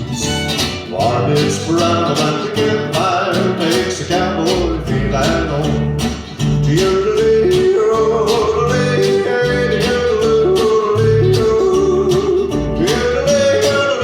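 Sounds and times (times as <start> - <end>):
strummed acoustic guitar: 0.0 - 14.0
walking bass line: 0.0 - 14.0
yodeling melody: 6.6 - 14.0.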